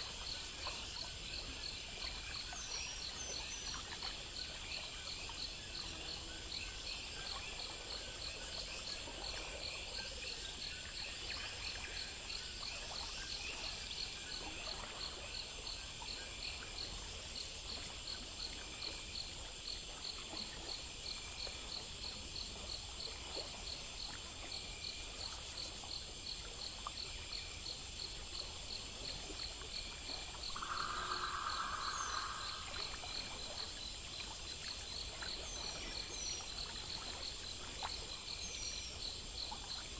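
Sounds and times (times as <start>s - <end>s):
crickets chirping: 0.0s - 39.9s
high-pitched insect trill: 0.0s - 39.9s
loud insect call: 22.2s - 39.9s.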